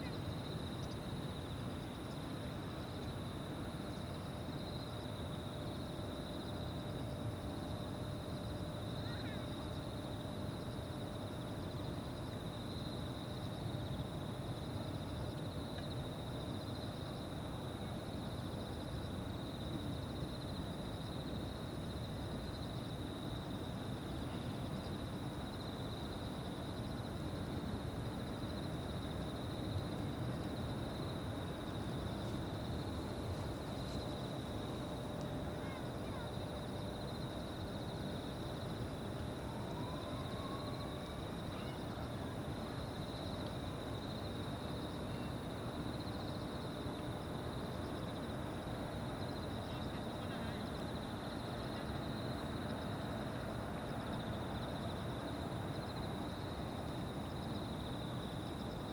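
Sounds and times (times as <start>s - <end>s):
higher-pitched insect trill: 0.0s - 58.9s
insects trilling chorus: 8.2s - 10.7s, 30.4s - 58.9s.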